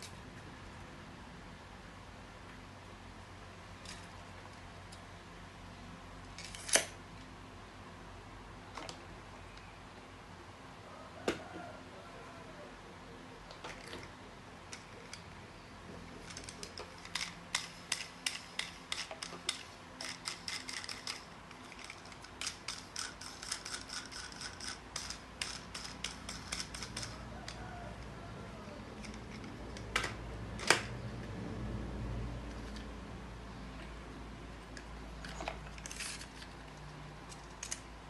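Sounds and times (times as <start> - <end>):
sharp mechanical clicks: 16.3 - 27.6.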